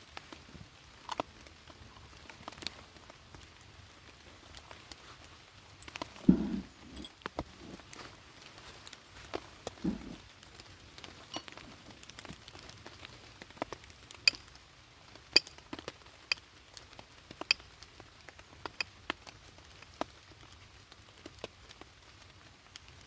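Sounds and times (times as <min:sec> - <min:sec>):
faint rain hiss: 0:00.0 - 0:23.0
raindrops tapping a surface: 0:15.3 - 0:23.0.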